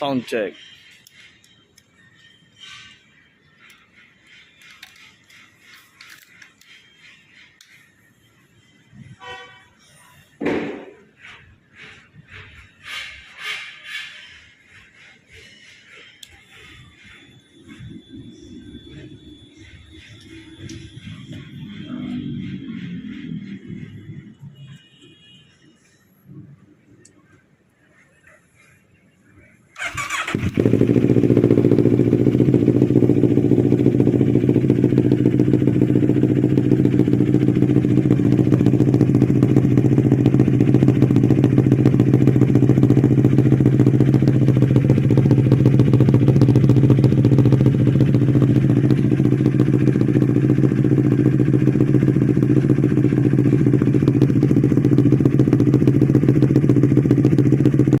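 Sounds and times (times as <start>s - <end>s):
motorcycle engine starting: 3.6s - 7.5s, 14.3s - 24.4s, 29.8s - 58.0s
motorcycle engine idling: 15.0s - 25.0s, 29.8s - 58.0s.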